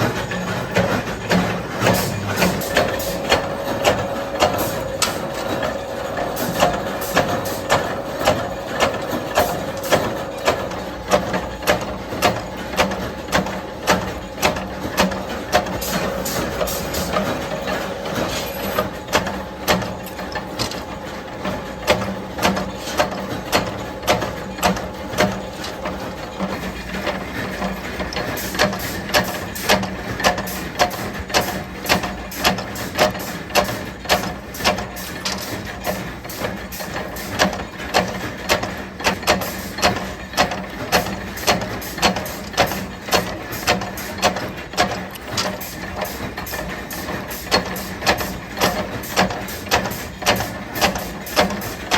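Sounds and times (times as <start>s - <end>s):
motor hum: 0.0s - 28.8s
machine knocking on metal: 0.0s - 51.9s.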